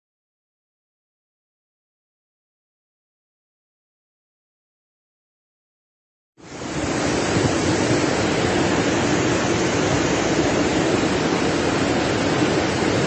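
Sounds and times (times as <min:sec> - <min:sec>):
floodwater rushing: 0:06.4 - 0:13.0.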